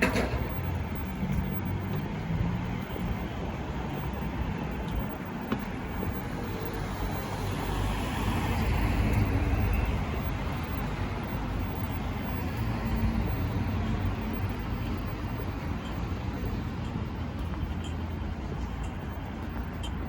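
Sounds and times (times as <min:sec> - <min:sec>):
hum of passing cars: 0:00.0 - 0:20.0.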